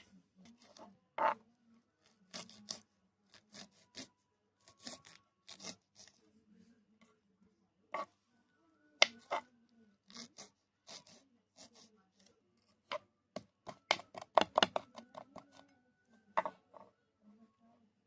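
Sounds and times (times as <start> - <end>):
knife chopping on cutting board: 13.6 - 15.2.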